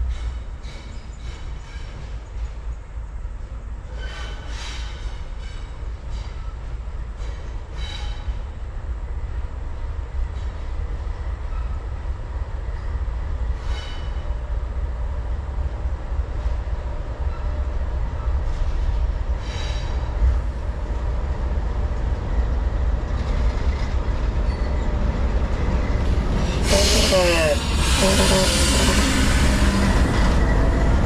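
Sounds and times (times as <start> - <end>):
locomotives rumbling: 20.6 - 31.0
high-pitched wheel squeals: 26.4 - 30.7.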